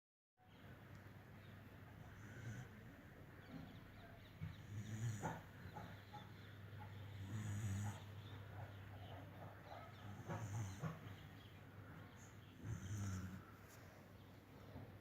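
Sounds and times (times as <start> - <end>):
dog snoring: 2.0 - 2.9, 4.4 - 6.0, 6.9 - 8.7, 9.7 - 11.2, 12.2 - 13.6.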